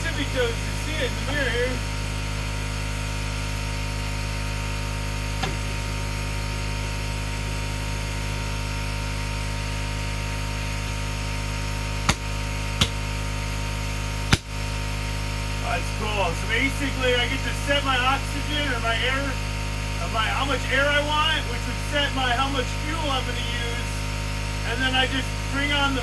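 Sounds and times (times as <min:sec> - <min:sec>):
propane burner hissing: 0:00.0 - 0:08.8, 0:09.9 - 0:26.0.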